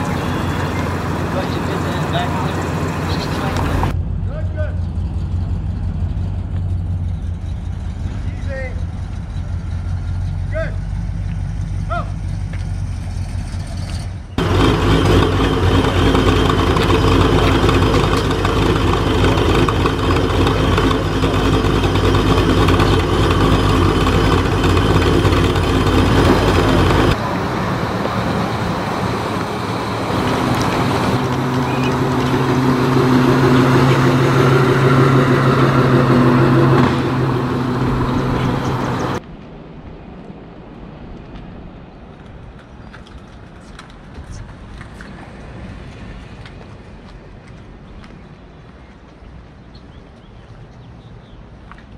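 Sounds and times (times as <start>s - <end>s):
car engines idling: 0.0s - 39.2s.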